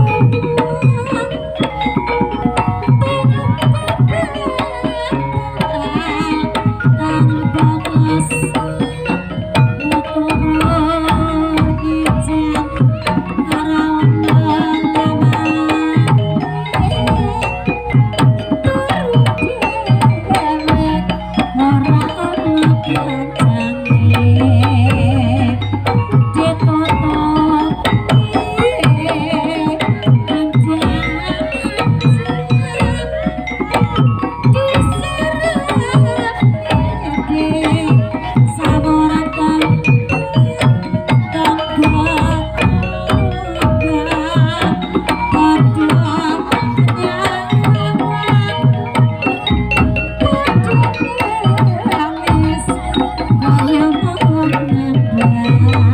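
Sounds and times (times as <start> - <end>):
gamelan ensemble playing: 0.0 - 55.9
ringing metal percussion: 0.0 - 55.9
wavering high melody: 0.0 - 55.9
metallophone and gong tones: 22.5 - 29.6
hand drum strokes: 23.4 - 33.0.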